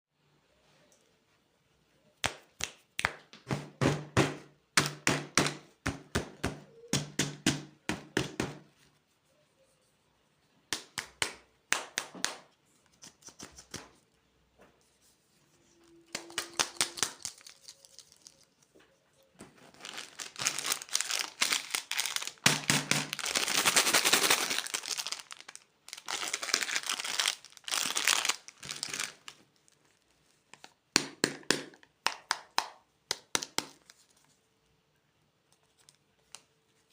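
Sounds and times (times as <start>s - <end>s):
plastic wrappers crinkling: 15.8s - 30.8s.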